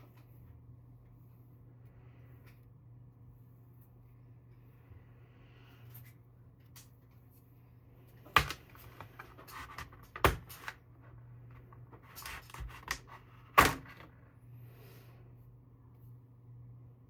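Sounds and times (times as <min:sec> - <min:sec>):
faint steady hum: 0:00.0 - 0:17.0
packaging rustling: 0:11.5 - 0:14.0.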